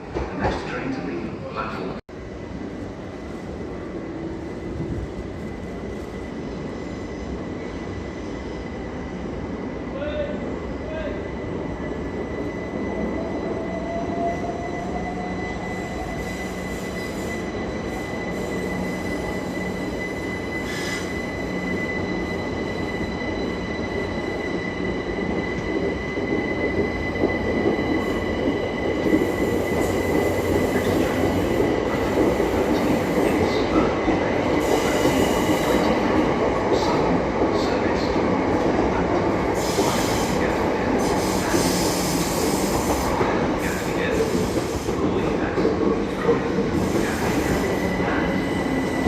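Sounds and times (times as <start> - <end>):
train wheel squeal: 11.8 - 36.2, 39.5 - 49.0.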